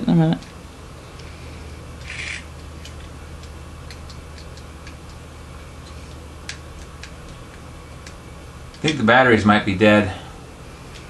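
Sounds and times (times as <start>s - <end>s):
steady low hum: 0.0s - 11.0s
toy clicking and ticking: 2.0s - 5.2s.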